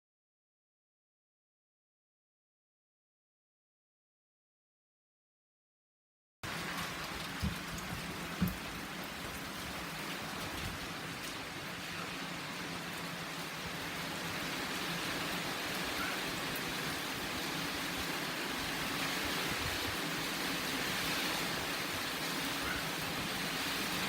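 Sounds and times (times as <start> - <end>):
heavy rain: 6.4 - 24.0.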